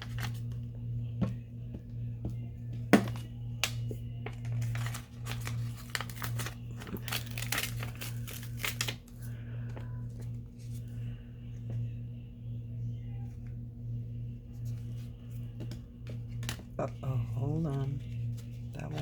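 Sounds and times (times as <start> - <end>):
paper crinkling and rustling: 0.0 - 0.6, 4.2 - 9.3
steady low hum: 0.0 - 19.0.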